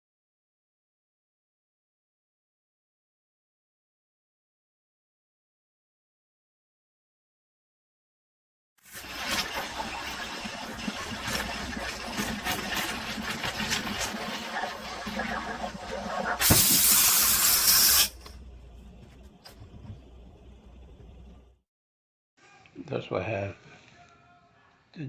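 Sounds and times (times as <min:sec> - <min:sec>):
espresso machine hissing steam: 0:16.3 - 0:18.2
loud steam blast: 0:16.4 - 0:18.2.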